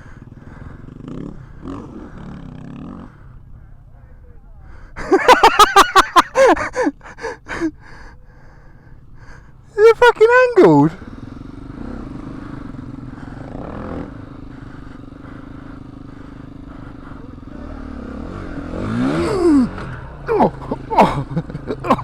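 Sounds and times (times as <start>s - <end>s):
dirt bike engine revving: 0.0s - 3.5s, 10.3s - 22.0s.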